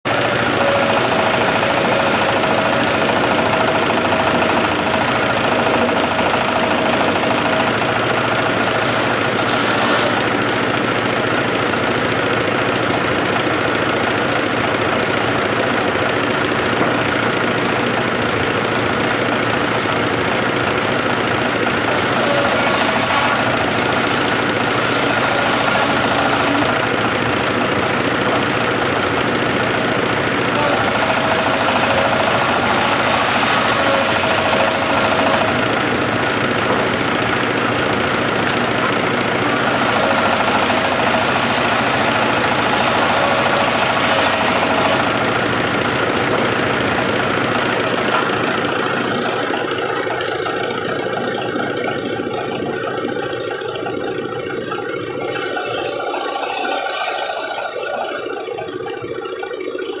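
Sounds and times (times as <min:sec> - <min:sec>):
sawmill machinery humming: 0:00.0 - 1:00.0.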